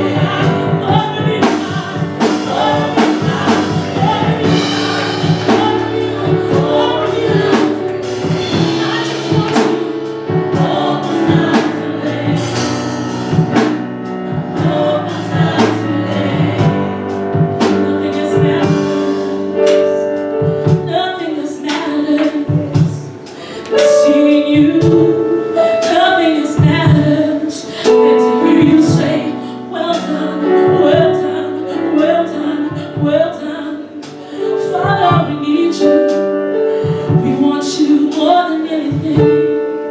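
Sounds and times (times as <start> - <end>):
choir-like singers: 0.0 - 13.6, 14.3 - 20.0
band with drum kit: 0.0 - 39.9.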